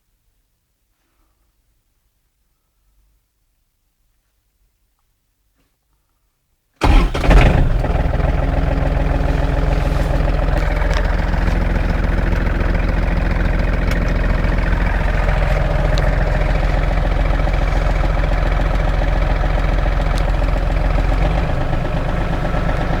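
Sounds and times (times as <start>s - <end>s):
tractor engine starting: 6.8s - 23.0s.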